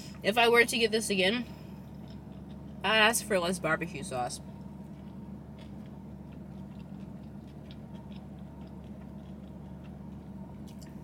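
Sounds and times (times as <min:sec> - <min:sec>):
steady low hum: 0:00.0 - 0:11.0
person chewing fries: 0:01.5 - 0:03.3, 0:04.4 - 0:11.0.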